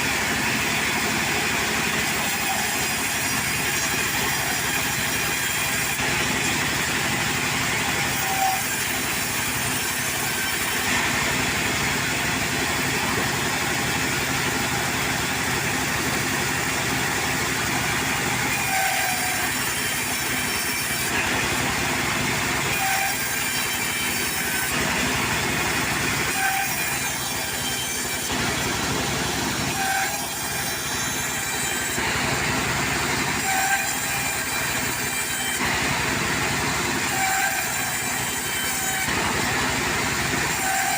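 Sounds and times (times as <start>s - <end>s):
sawmill running: 0.0s - 40.9s
high squeak: 29.7s - 31.9s.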